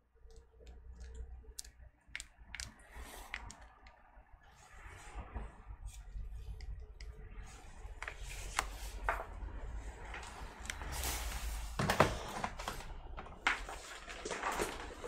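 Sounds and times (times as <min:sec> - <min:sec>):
clicks and knocks of handling parts: 0:00.2 - 0:04.1.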